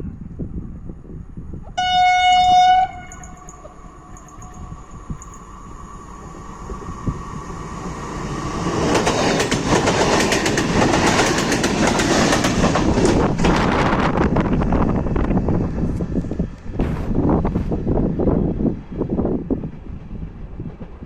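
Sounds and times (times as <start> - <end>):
train passing: 0.4 - 21.0
wheels clattering over rail joints: 8.6 - 14.5.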